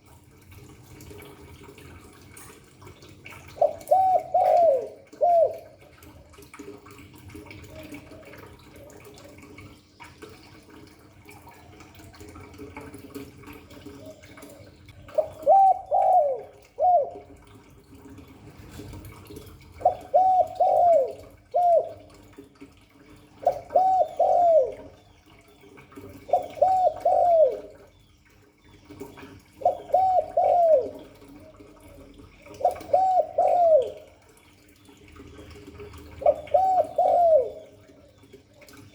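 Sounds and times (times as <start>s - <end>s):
dove cooing: 3.3s - 6.6s, 7.4s - 17.7s, 19.7s - 22.5s, 23.1s - 27.9s, 29.1s - 34.3s, 35.2s - 38.9s.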